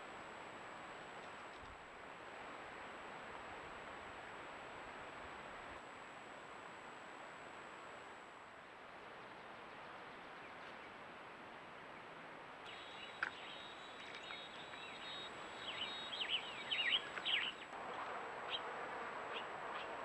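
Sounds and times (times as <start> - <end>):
microphone hiss: 0.0 - 20.0
small birds chirping: 12.7 - 17.7.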